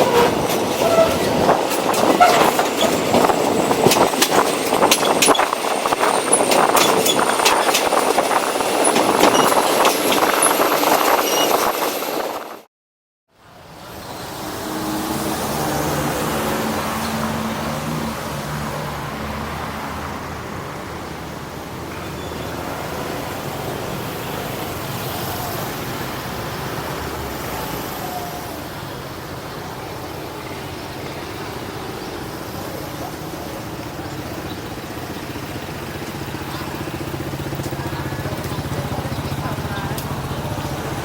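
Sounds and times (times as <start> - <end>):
vehicles passing: 0.0 - 8.4, 13.4 - 41.0
engine hum: 28.4 - 41.0.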